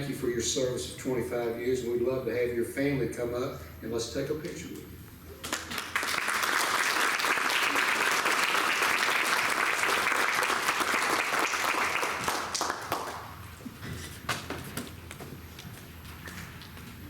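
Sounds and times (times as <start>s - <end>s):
audience applauding: 5.4s - 13.4s.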